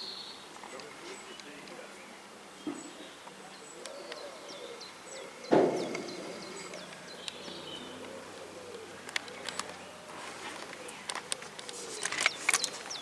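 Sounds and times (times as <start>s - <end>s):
small birds chirping: 0.0s - 13.0s
loud thump: 5.5s - 6.7s.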